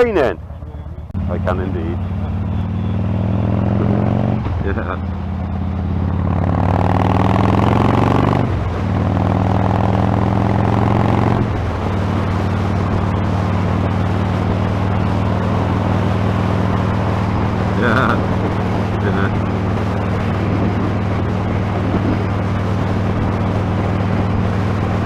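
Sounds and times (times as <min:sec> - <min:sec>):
motorcycle engine accelerating: 0:00.0 - 0:25.0
wind noise on microphone: 0:07.0 - 0:25.0.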